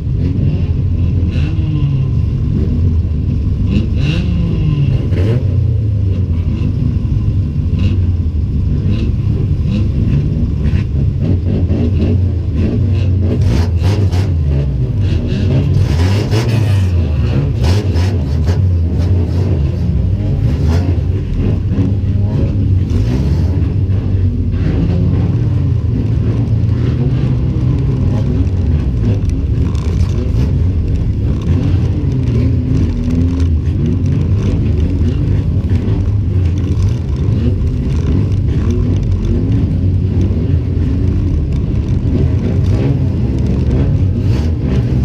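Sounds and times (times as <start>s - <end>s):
racing car engine revving: 0.0s - 45.0s.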